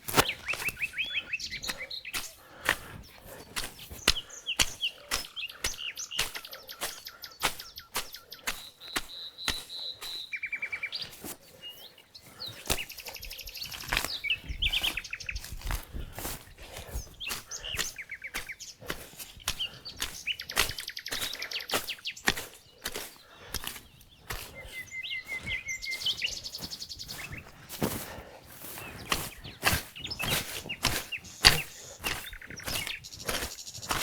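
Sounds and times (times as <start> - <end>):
songbirds chirping and trilling: 0.0 - 34.0
sharp irregular knocks: 29.0 - 34.0.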